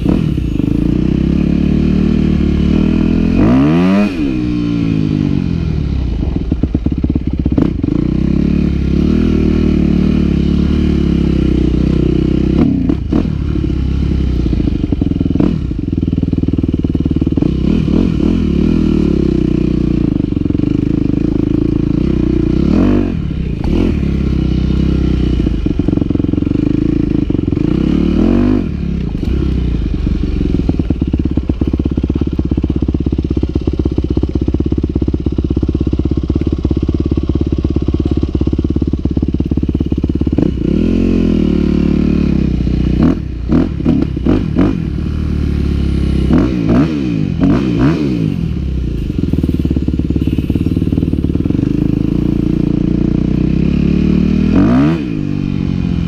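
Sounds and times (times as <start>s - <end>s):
dirt bike engine revving: 0.0s - 6.4s, 17.1s - 32.2s, 39.5s - 56.0s.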